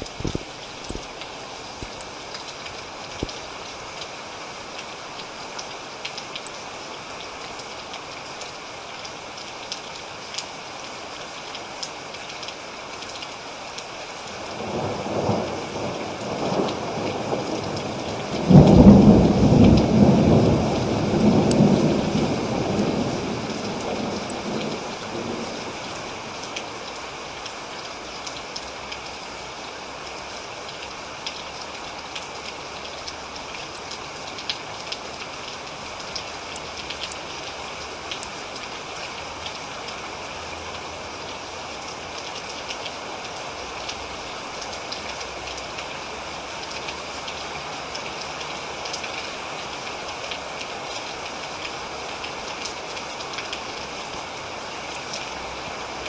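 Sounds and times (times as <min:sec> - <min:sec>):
raindrops ticking: 0:00.0 - 0:04.1, 0:04.7 - 0:06.6, 0:11.5 - 0:53.9, 0:54.7 - 0:56.0
steady rain: 0:00.0 - 0:56.0
thunder rolling: 0:14.6 - 0:25.5.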